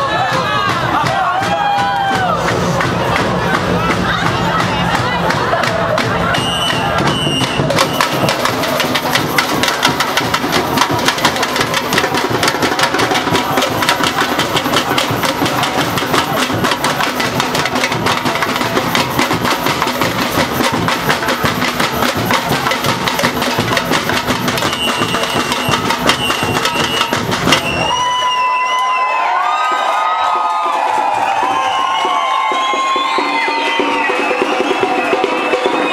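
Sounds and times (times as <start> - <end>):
samba drums playing: 0.0 - 28.7, 29.6 - 35.9
whistle-like tone: 6.4 - 8.4, 24.6 - 29.1, 31.6 - 35.9.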